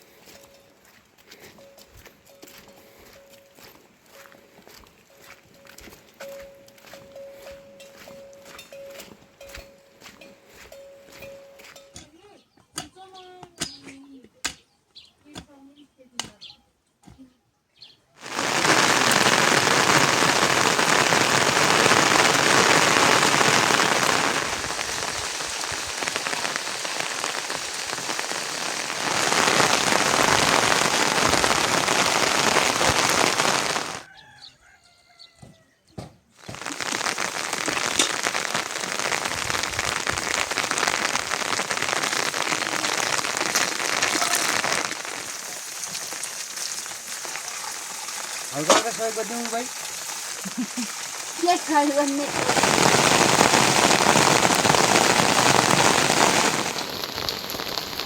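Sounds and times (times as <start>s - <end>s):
heavy rain falling: 18.2s - 34.1s, 36.4s - 58.0s.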